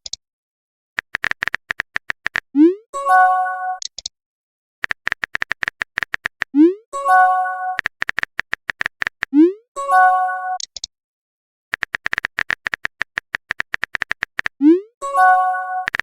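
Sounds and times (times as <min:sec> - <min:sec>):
rapid electronic clicks: 0:01.0 - 0:02.5, 0:04.8 - 0:06.5, 0:07.8 - 0:09.3, 0:11.7 - 0:14.6
synthesized chime chord: 0:09.8 - 0:10.6.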